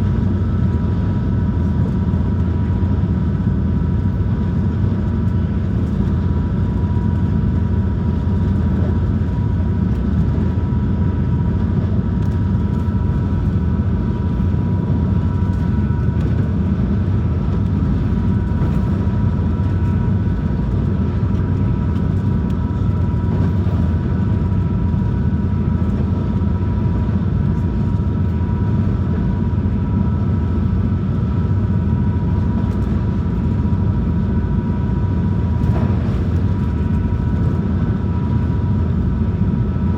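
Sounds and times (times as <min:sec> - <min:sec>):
boat engines droning: 0:12.9 - 0:39.9.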